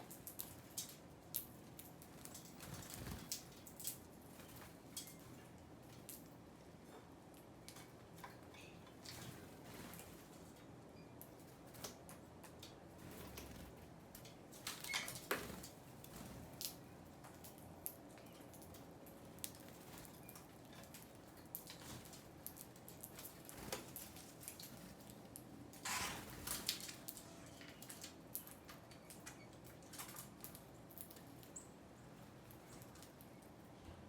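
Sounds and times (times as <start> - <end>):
birds tapping while feeding: 0.0 - 6.3.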